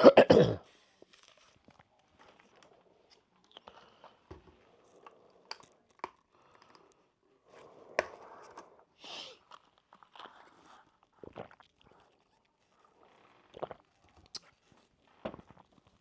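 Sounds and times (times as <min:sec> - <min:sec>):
mouth sounds of eating and drinking: 0:09.0 - 0:16.0.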